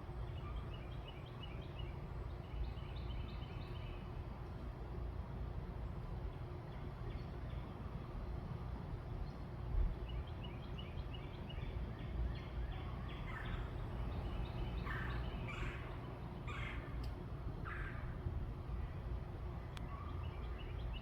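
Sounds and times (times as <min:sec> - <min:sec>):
birds chirping: 0:10.0 - 0:18.2
steady low rumble: 0:12.2 - 0:21.0
harsh bird calls: 0:12.4 - 0:17.0.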